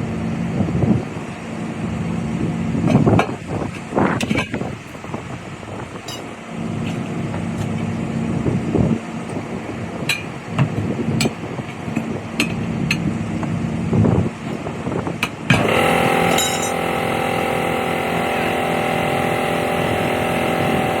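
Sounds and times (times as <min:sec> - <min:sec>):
engine hum: 0:00.0 - 0:21.0
loud steady sound: 0:15.3 - 0:21.0.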